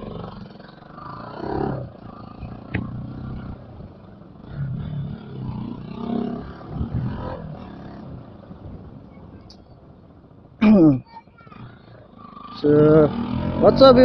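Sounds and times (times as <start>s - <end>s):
motorcycle engine revving: 0.0s - 10.6s, 11.4s - 14.0s
exhaust pop: 2.6s - 3.0s.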